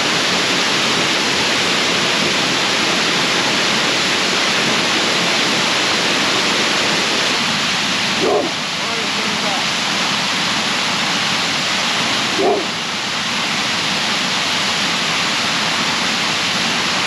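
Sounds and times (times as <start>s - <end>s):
small waterfall pouring: 0.0s - 17.0s.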